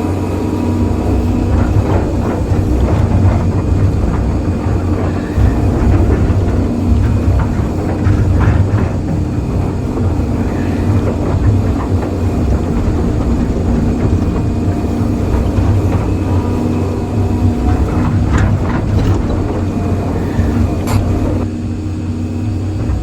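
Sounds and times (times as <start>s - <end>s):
excavator diesel engine running: 0.0s - 23.0s
short knocks: 1.1s - 21.4s.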